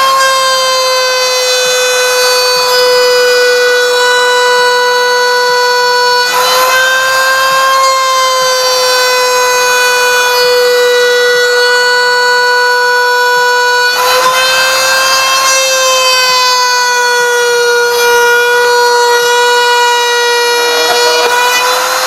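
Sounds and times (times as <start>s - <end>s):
router spindle whining: 13.4s - 22.0s.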